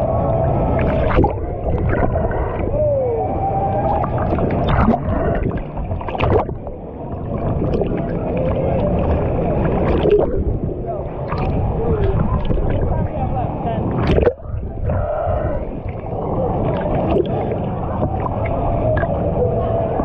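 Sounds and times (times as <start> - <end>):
rushing gurgling water: 0.0 - 20.0
sharp water splashes: 3.9 - 13.0, 13.9 - 14.7.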